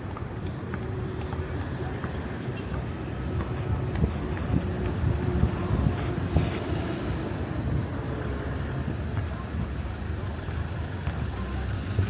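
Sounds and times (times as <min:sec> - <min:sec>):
road traffic rumble: 0:00.0 - 0:12.0
wind buffeting microphone: 0:02.9 - 0:09.8.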